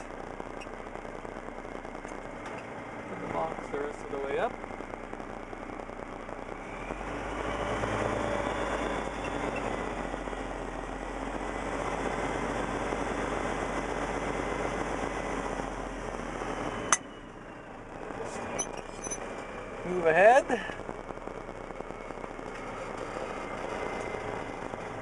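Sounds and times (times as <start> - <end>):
truck engine revving: 0.0 - 25.0.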